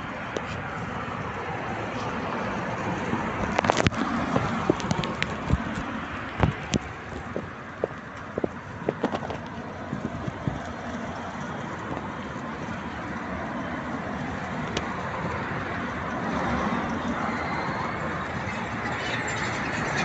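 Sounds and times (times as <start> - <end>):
raindrops tapping: 3.4 - 9.6.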